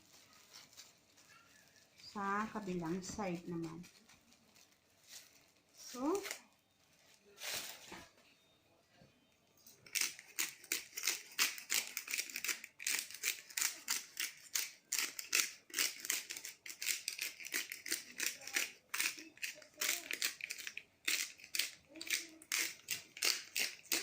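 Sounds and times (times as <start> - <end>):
hands seasoning raw chicken: 9.8 - 24.0.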